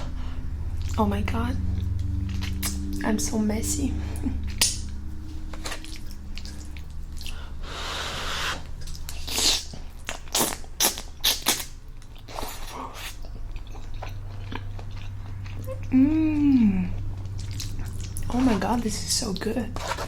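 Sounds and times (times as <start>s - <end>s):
noisy rush: 0.0s - 9.2s
mouth eating sounds wet smacks: 1.8s - 3.0s, 8.4s - 15.9s.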